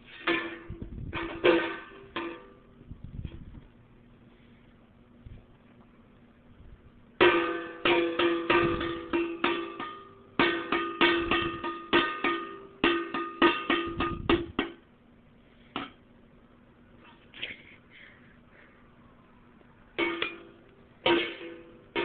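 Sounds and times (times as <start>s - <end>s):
banging on ringing object: 0.2s - 2.7s, 7.2s - 14.8s, 20.0s - 22.0s.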